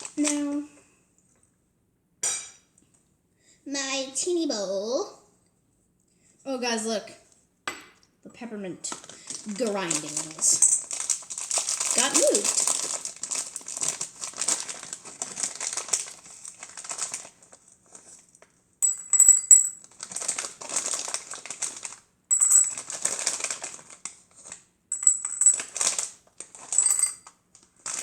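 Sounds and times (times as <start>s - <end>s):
candy pieces clattering in a bowl: 8.9s - 17.4s, 18.8s - 28.0s.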